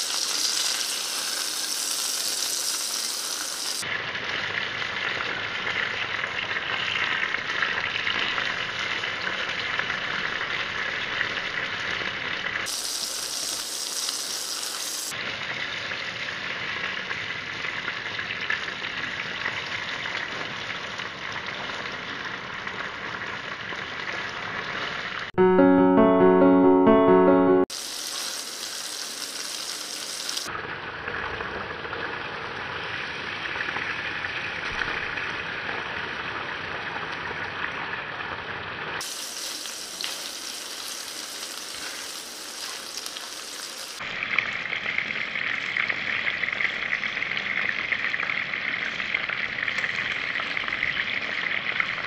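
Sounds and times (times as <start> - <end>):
meatballs sizzling in oil: 0.0 - 25.3, 27.7 - 30.5, 39.0 - 44.0.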